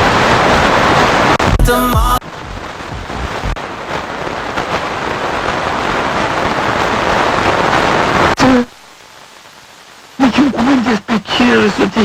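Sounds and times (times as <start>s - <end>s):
radio static hiss: 6.8s - 12.0s.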